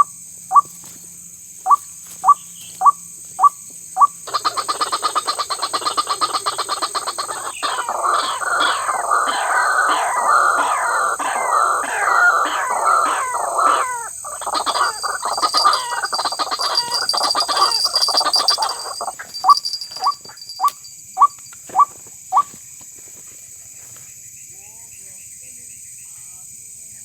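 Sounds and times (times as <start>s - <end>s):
waterhen calling: 1.6s - 22.6s.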